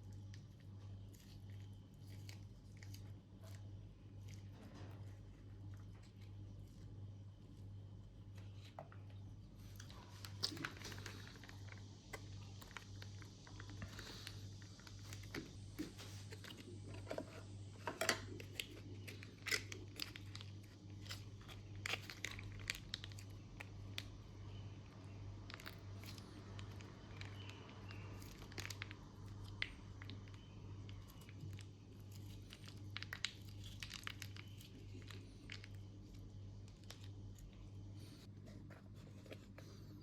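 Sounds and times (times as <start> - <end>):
low steady hum: 0.0 - 40.0
food packets crinkling: 9.6 - 17.2, 18.0 - 37.9.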